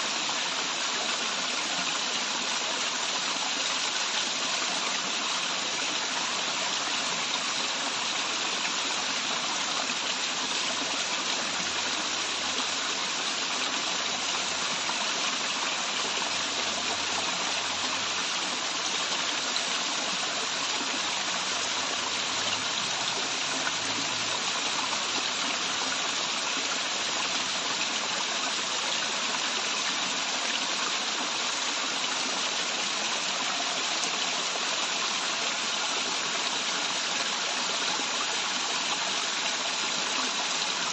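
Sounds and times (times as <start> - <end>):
waterfall and stream rushing: 0.0 - 40.9.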